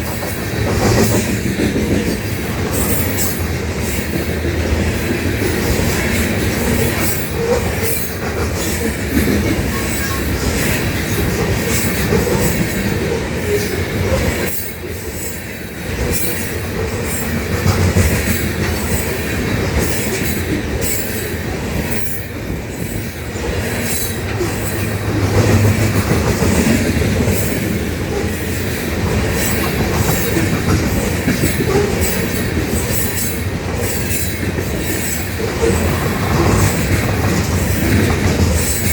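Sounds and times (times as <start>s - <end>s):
train wheels clacking over rails: 0.0s - 38.9s
train wheel squeal: 2.1s - 4.1s, 6.0s - 15.4s, 18.2s - 25.0s, 29.3s - 38.9s.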